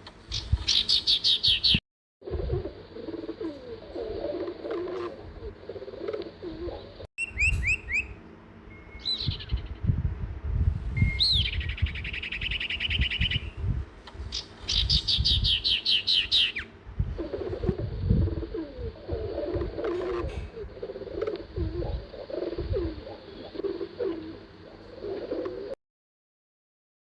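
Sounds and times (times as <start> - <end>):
songbird chirps and trills: 0.1 - 10.0, 10.9 - 25.8
dove cooing: 0.7 - 8.1, 14.2 - 25.8
low uneven rumble: 16.8 - 25.7.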